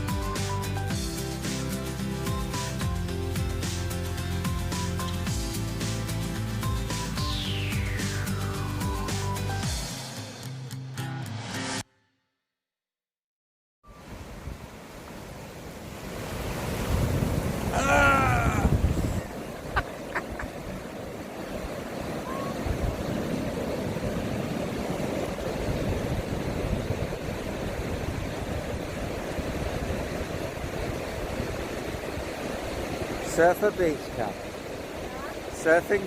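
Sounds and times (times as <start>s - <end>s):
surf breaking on beach: 13.9s - 36.0s
wind on microphone: 16.0s - 33.2s
short high cry: 17.7s - 18.8s.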